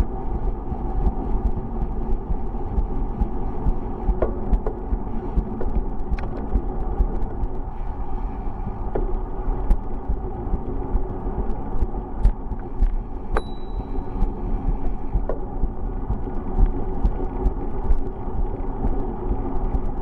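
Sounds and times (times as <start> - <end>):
bicycle road and wind noise: 0.0 - 20.0
bell ring: 13.4 - 14.0.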